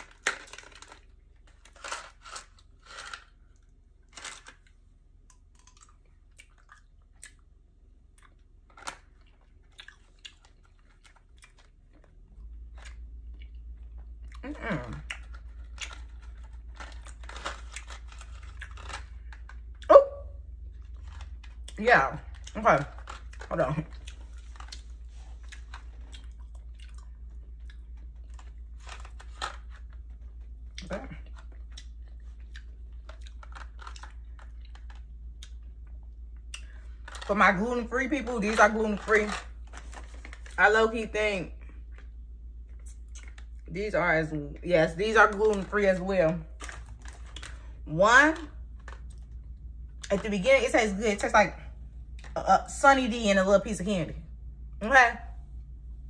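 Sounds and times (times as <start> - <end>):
candy box crinkling: 0.0 - 4.8, 8.6 - 19.8, 20.4 - 41.1, 44.8 - 50.5
chewing candy: 0.0 - 40.6, 41.6 - 43.7
low hum: 0.0 - 56.0.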